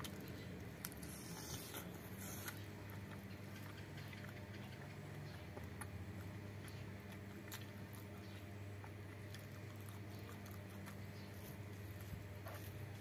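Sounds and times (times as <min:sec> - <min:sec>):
faint low hum: 0:00.0 - 0:13.0
person chewing food: 0:00.0 - 0:13.0.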